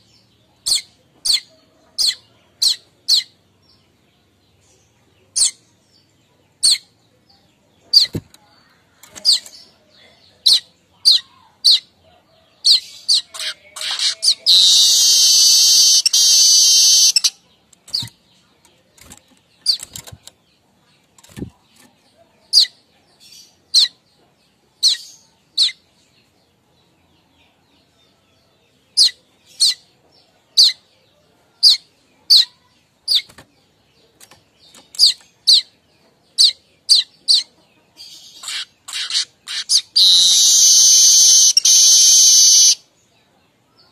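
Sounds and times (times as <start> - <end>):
bird chips and chattering: 12.7 - 18.2, 38.1 - 42.8.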